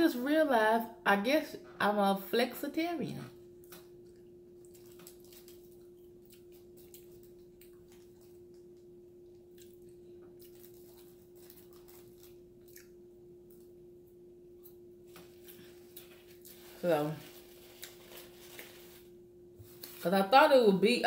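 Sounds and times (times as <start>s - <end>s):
steady low hum: 0.0s - 21.0s
chewing and lip smacking: 3.6s - 13.7s.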